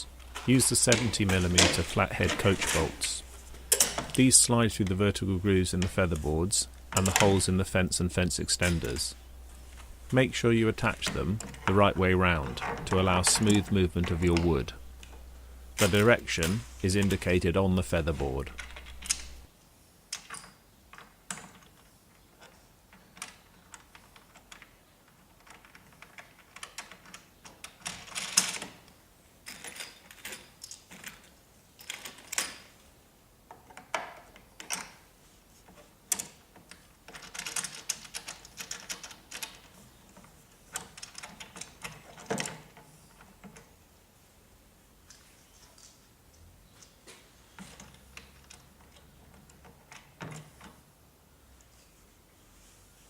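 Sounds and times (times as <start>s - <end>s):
metal bolts clicking: 0.0s - 19.5s.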